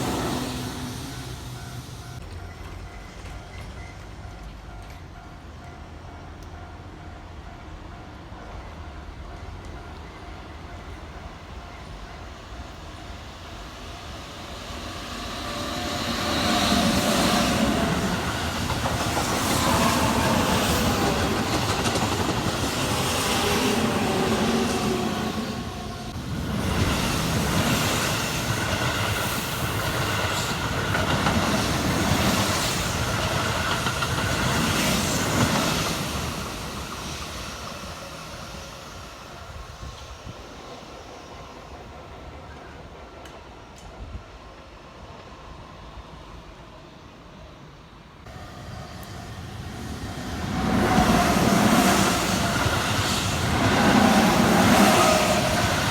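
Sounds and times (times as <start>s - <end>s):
electric train passing: 0.0s - 55.9s
train wheels clacking: 14.8s - 38.4s.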